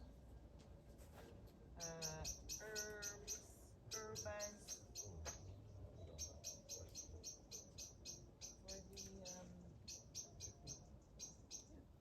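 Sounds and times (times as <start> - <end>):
small bird chirping: 1.8 - 11.8.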